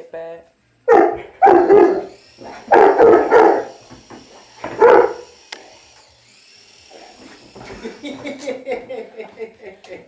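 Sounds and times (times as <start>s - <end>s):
puppy barking: 0.9s - 3.8s, 4.7s - 5.2s
toy helicopter motor whine: 1.8s - 8.4s.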